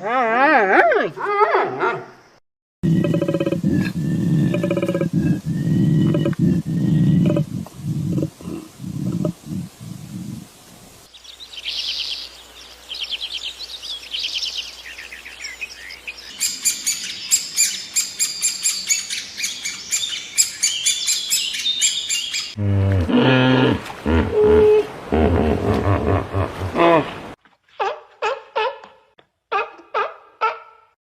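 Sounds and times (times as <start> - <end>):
loud low animal call: 2.9 - 10.4, 22.6 - 27.3
small birds chirping and trilling: 11.1 - 22.6.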